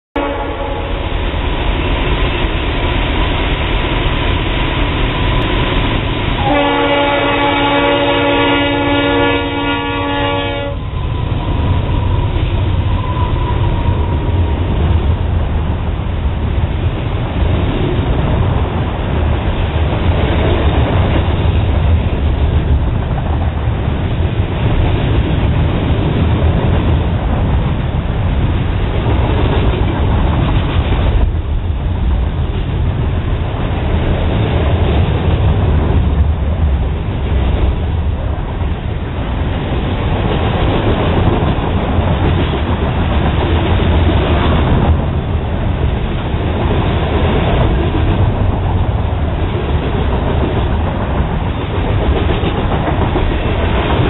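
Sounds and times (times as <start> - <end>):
locomotive air horn chord: 0.2 - 1.0, 6.4 - 10.8
train cars rumbling: 0.2 - 54.0.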